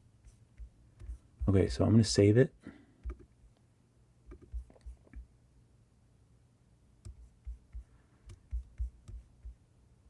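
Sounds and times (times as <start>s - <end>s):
keyboard and mouse clicks: 3.0s - 3.3s, 4.3s - 5.2s.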